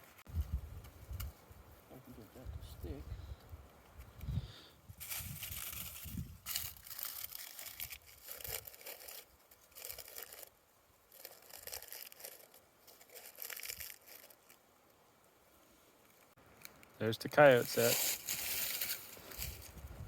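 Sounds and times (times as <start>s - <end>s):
crunching and scraping in dirt: 4.9s - 14.6s, 17.4s - 20.0s.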